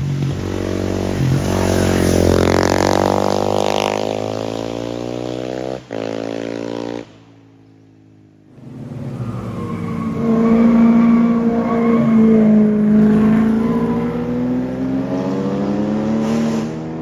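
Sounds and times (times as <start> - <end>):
vehicle engine passing at speed: 8.5 - 17.0
gear change: 8.6 - 15.9.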